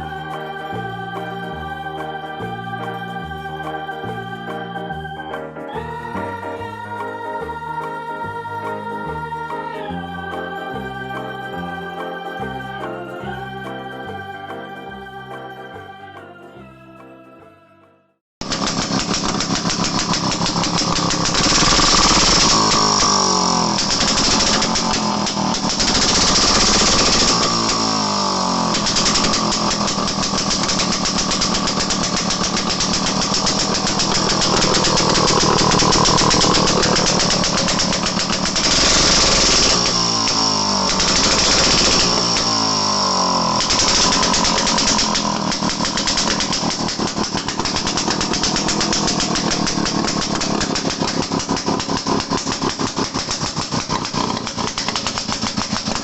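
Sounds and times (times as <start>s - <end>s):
two-stroke engine revving: 18.4s - 56.0s.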